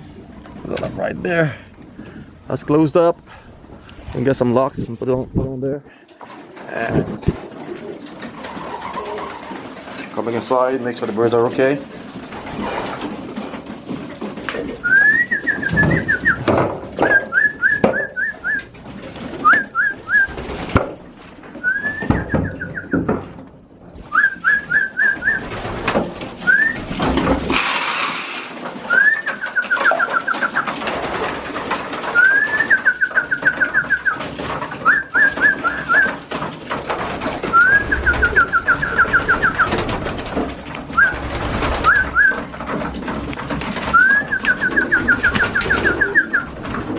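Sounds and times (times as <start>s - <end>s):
pigeons cooing: 6.0s - 10.1s, 11.8s - 20.5s, 28.8s - 36.4s, 37.3s - 46.9s
pigeons whistling calls: 14.7s - 20.5s, 21.6s - 23.1s, 24.0s - 25.8s, 26.4s - 27.0s, 28.8s - 31.3s, 32.0s - 36.3s, 37.4s - 40.0s, 40.9s - 42.5s, 43.8s - 46.9s
knocks: 21.7s - 23.5s.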